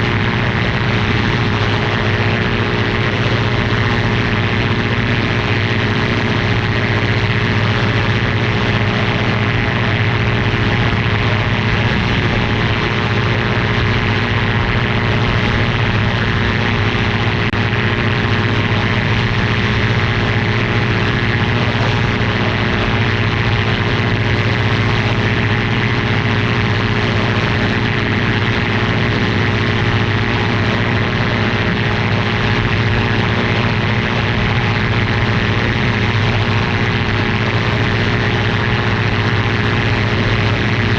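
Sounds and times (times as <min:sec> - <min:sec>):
aircraft engine and propeller drone: 0:00.0 - 0:40.9.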